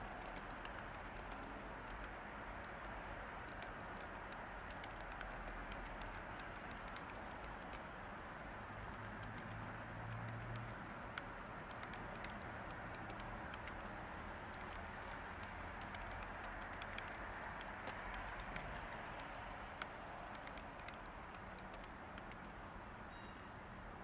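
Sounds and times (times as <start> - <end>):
keyboard typing clicks: 0.0 - 7.9, 8.9 - 22.5
white noise hiss: 0.0 - 24.0.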